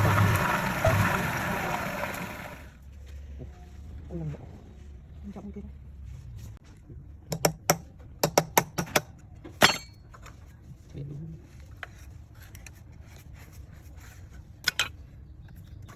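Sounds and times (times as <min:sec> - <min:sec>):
sharp knocks of hard objects: 0:07.3 - 0:10.0.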